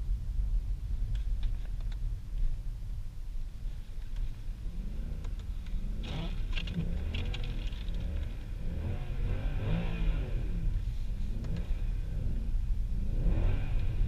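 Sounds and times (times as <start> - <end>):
car engine revving: 4.6 - 14.0.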